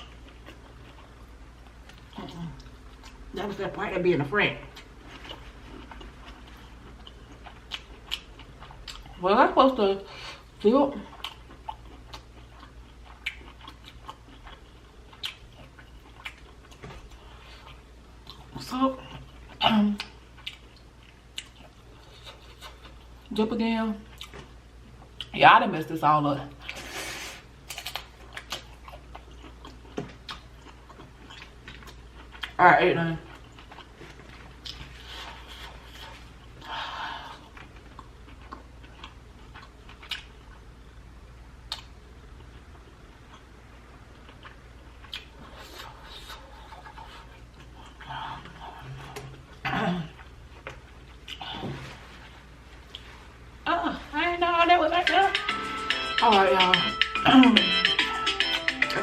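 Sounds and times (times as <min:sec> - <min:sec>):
eating clicks and smacks: 0:41.7 - 0:42.6.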